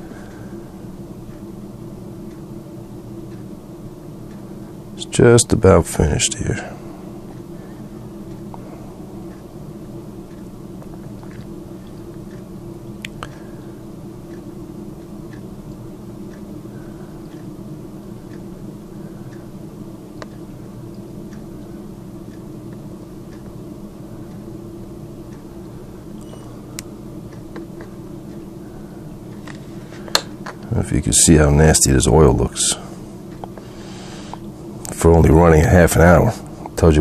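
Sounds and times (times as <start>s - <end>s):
steady low hum: 0.0s - 37.0s
small ticks: 3.2s - 4.8s, 9.3s - 30.7s.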